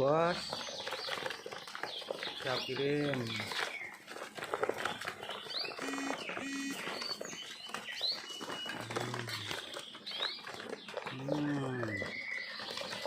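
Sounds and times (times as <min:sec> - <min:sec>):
pigeons cooing: 0:00.4 - 0:13.0
high bird chirps: 0:05.2 - 0:08.7.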